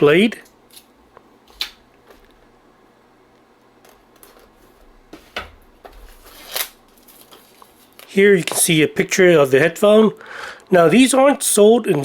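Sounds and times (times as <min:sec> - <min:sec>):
blade slitting plastic wrap: 0:06.0 - 0:08.1.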